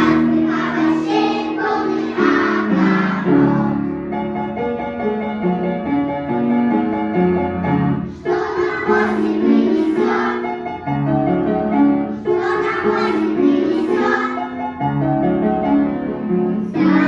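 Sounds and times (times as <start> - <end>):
children singing: 0.0 - 3.9, 8.1 - 10.6, 12.1 - 14.7, 16.7 - 17.0
piano chords: 0.0 - 17.0.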